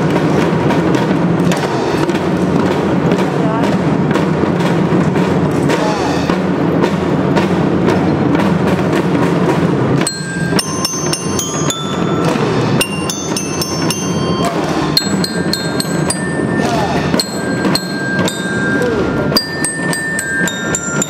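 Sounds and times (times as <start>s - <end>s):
marching drum beat: 0.0s - 21.0s
bell lyra melody: 10.0s - 21.0s.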